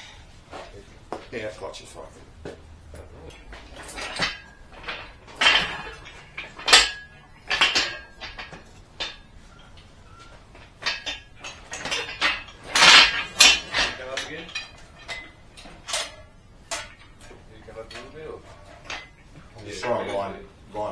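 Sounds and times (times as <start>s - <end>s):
metal tools clanking: 0.0s - 20.9s.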